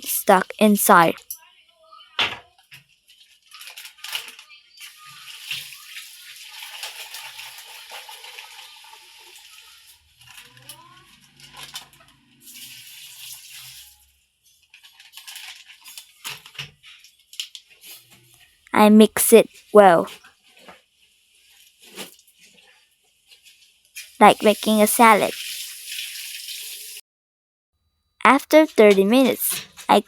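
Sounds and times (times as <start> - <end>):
water splashing into a basin: 4.8 - 9.6, 11.3 - 14.0, 24.6 - 27.0.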